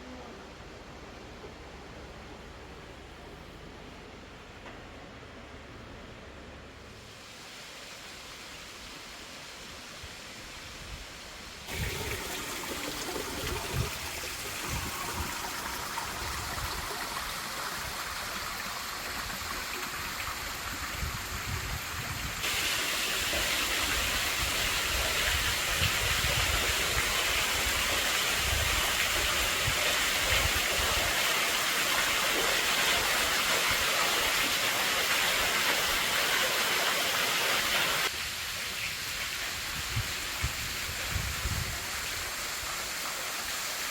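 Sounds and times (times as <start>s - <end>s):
waterfall rushing: 22.4s - 38.2s.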